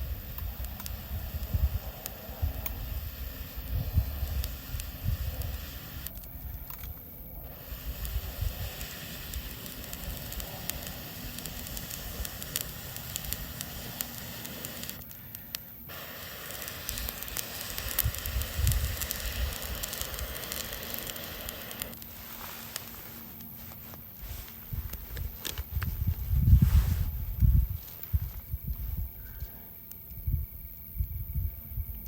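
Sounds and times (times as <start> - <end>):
campfire crackling and popping: 0.0 - 29.0
fire hiss: 0.0 - 32.0.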